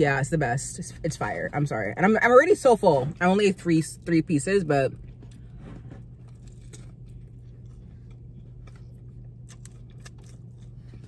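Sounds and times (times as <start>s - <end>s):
low hum: 0.0s - 11.0s
chewing pizza: 4.9s - 11.0s.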